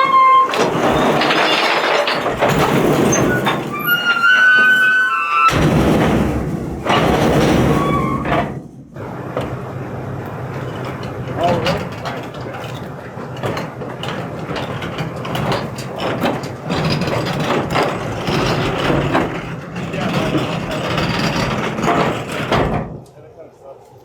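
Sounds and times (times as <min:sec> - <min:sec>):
high mechanical squeals: 0:00.0 - 0:01.6, 0:03.1 - 0:05.6, 0:07.6 - 0:08.5
garbage truck clatter and rumble: 0:00.0 - 0:23.3.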